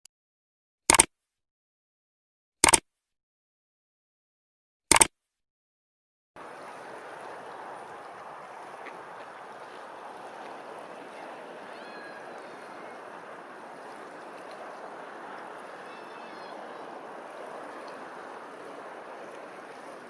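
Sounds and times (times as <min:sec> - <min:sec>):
running water rushing: 0:06.4 - 0:20.0.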